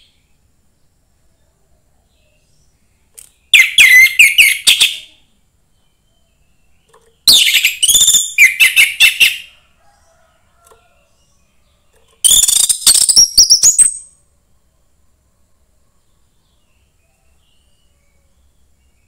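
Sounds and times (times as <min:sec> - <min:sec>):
thrush singing whistled notes: 0:03.4 - 0:05.1, 0:07.2 - 0:09.5, 0:12.2 - 0:14.2.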